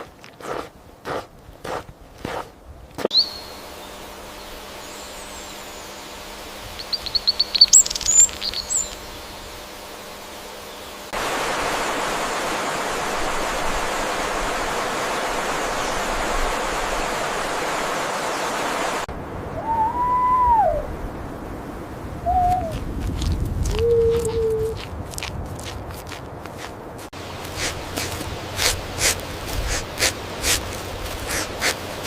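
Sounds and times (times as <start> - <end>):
steady outdoor background: 0.0 - 32.0
bird chirping high notes: 3.1 - 4.0, 6.8 - 9.5.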